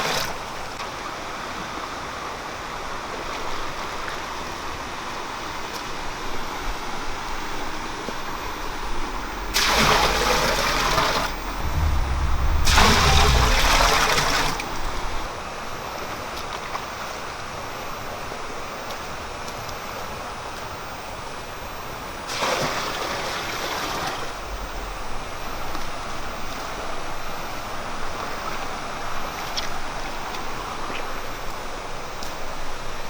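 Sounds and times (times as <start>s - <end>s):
running water: 9.0s - 15.5s
water gushing and splashing: 9.4s - 15.4s.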